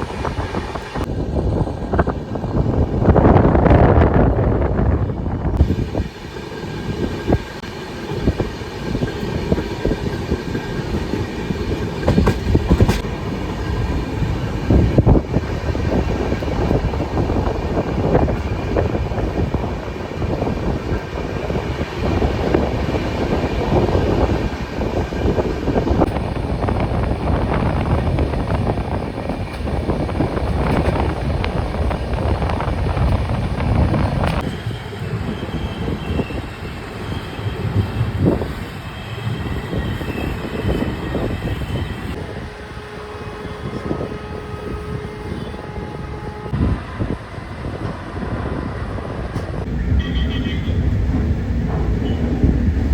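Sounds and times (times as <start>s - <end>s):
wind on microphone: 0.0s - 6.2s, 6.8s - 50.0s
train coaches rumbling and rattling: 0.0s - 52.9s.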